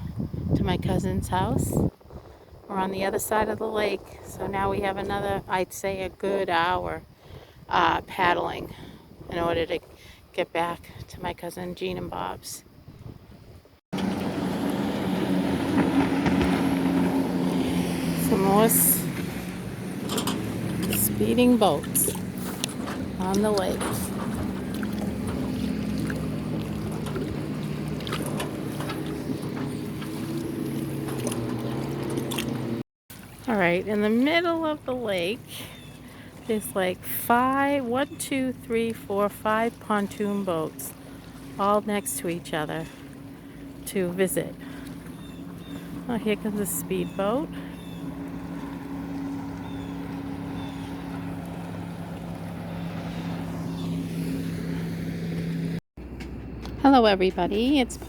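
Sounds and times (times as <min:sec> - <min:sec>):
motorboat engine drone: 0:14.0 - 0:58.0.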